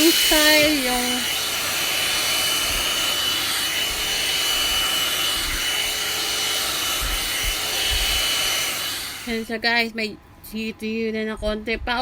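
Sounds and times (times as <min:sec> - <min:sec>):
hot-air brush whining: 0:00.0 - 0:09.6.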